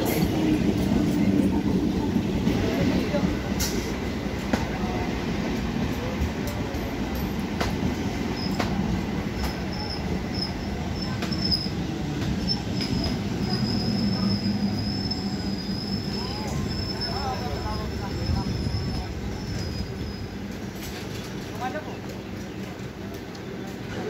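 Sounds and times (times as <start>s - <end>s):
train rolling with low hum: 0.0s - 24.0s
high wheel squeal: 9.7s - 20.4s.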